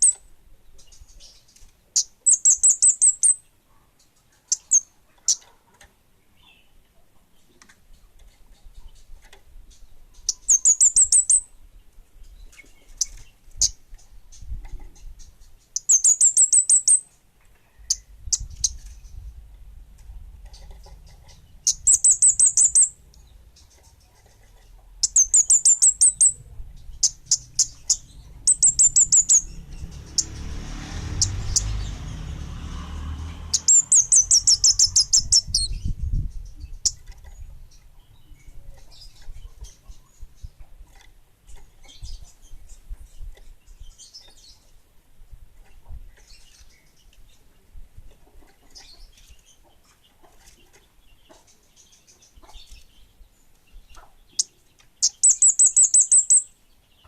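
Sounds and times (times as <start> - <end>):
songbird trilling: 0.0 - 0.2, 2.0 - 3.4, 9.8 - 11.6, 14.4 - 17.2, 20.4 - 30.4, 33.5 - 37.2, 54.3 - 56.6
low rumble: 17.9 - 23.7.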